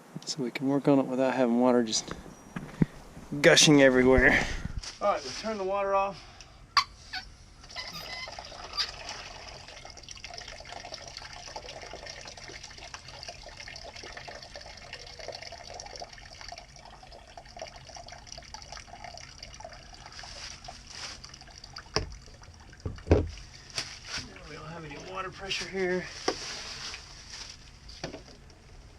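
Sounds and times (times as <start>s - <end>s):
water running from faucet: 8.0s - 20.1s.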